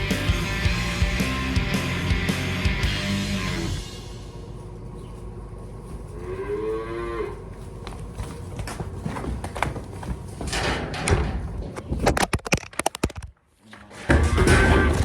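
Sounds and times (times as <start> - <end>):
steady low hum: 0.0 - 12.1
knocks and clatter: 8.3 - 13.4, 14.0 - 15.0.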